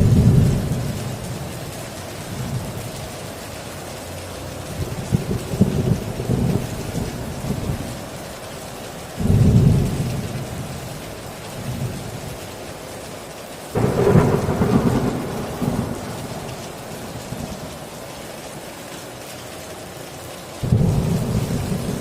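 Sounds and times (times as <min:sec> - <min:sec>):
torrential rain on a tin roof: 0:00.0 - 0:22.0
thunderclaps rolling: 0:04.8 - 0:07.9, 0:13.8 - 0:18.0, 0:20.6 - 0:22.0.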